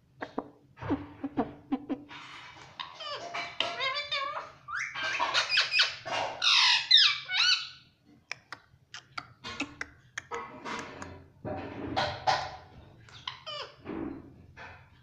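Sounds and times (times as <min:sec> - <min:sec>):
parrot squawking and chattering: 0:00.2 - 0:11.2, 0:13.1 - 0:13.8.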